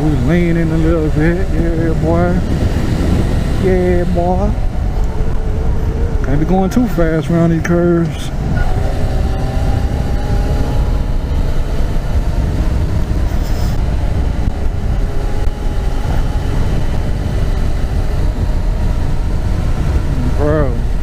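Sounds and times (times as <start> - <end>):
motorcycle engine cruising: 0.0 - 21.0
wind rumbling on microphone: 0.0 - 21.0.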